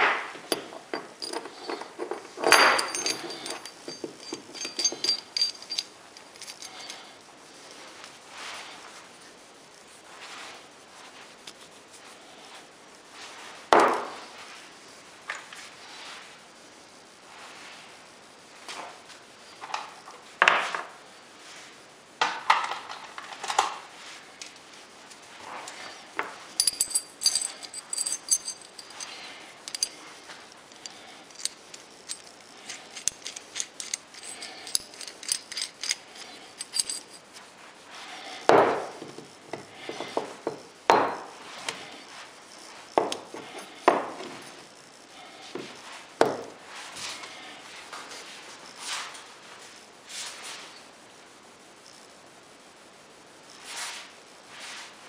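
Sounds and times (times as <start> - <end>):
metal parts jingling: 0.4 - 7.1, 25.6 - 37.4, 43.0 - 44.6.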